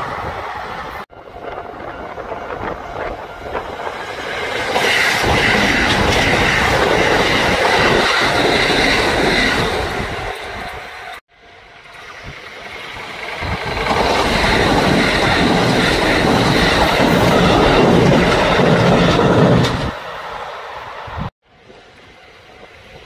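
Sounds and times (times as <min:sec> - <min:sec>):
train wheels clattering on rail: 0:01.8 - 0:10.0, 0:11.9 - 0:20.1.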